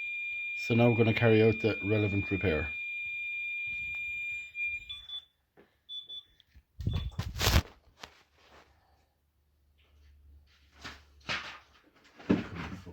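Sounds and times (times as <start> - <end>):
warning buzzer high tone: 0.0 - 5.1
short beeps: 0.0 - 5.3, 5.9 - 7.2
handling rustle and knock: 10.6 - 12.9.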